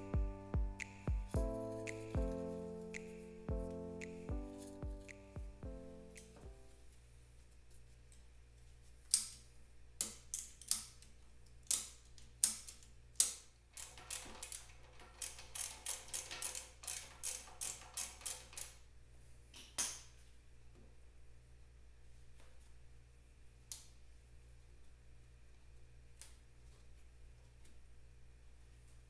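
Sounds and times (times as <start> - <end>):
sharp clicks and taps: 0.0 - 6.6.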